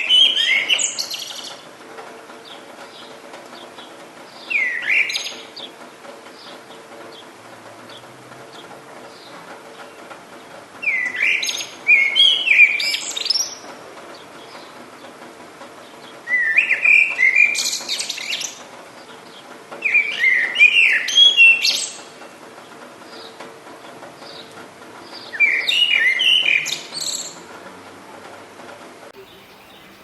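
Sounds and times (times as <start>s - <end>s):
faint chirps of other birds: 0.0s - 1.6s, 2.4s - 5.8s, 7.9s - 15.2s, 15.8s - 23.4s, 24.2s - 27.4s, 29.2s - 30.0s
songbird singing: 0.0s - 27.6s, 29.1s - 30.0s.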